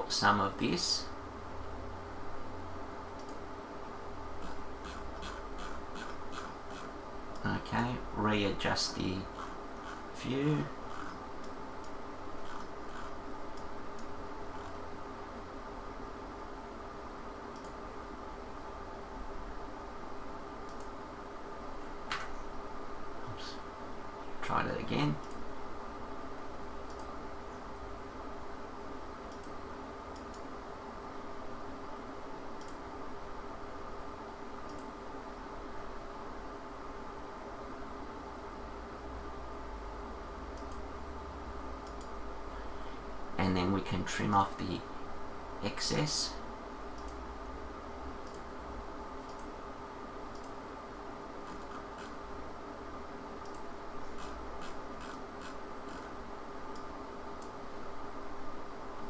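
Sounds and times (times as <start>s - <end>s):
computer hum: 0.0s - 59.0s
computer mouse clicks: 3.2s - 3.4s, 4.4s - 7.5s, 10.9s - 14.8s, 17.5s - 17.8s, 20.7s - 21.0s, 25.2s - 25.5s, 26.9s - 27.2s, 29.3s - 30.5s, 32.6s - 32.8s, 34.7s - 35.0s, 40.5s - 40.9s, 41.8s - 42.2s, 47.0s - 47.2s, 48.2s - 48.5s, 49.2s - 49.5s, 50.3s - 50.6s, 51.4s - 52.2s, 53.4s - 57.6s.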